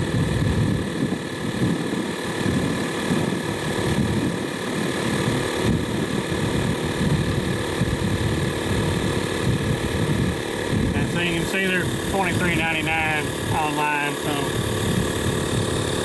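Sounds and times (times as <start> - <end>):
air compressor running: 0.0 - 16.0.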